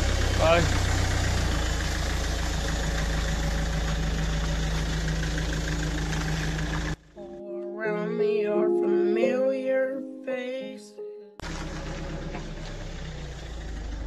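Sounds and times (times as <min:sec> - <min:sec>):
car engine idling: 0:00.0 - 0:07.2, 0:11.4 - 0:14.0
music with singing: 0:07.2 - 0:11.4.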